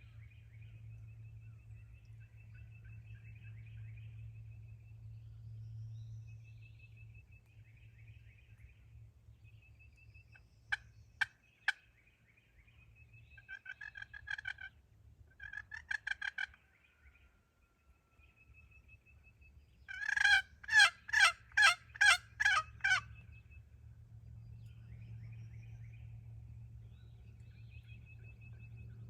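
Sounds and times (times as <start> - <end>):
turkey gobbling: 13.5 - 14.8, 15.4 - 16.6, 19.9 - 23.1.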